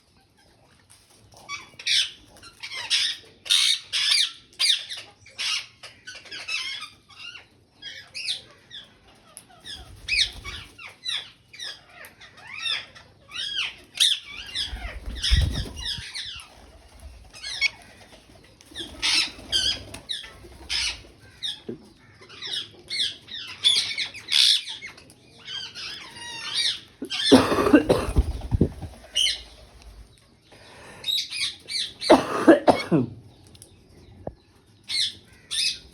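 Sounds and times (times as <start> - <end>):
parakeets squawking: 9.6 - 18.1, 18.8 - 24.8, 25.5 - 29.8.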